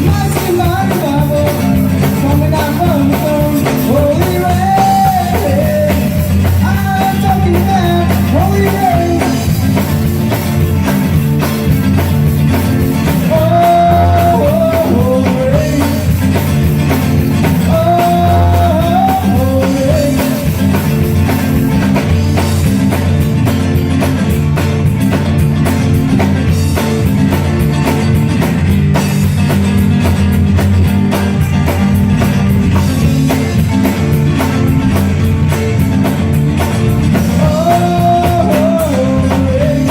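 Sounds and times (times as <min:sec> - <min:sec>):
person singing: 0:00.0 - 0:09.6, 0:13.1 - 0:16.3, 0:17.4 - 0:20.7, 0:37.2 - 0:39.9
rock song with drum beat: 0:00.0 - 0:39.9.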